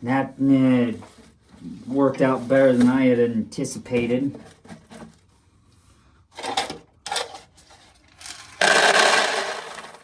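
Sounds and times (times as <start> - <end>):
dry corn kernels rattling: 8.6 - 10.0.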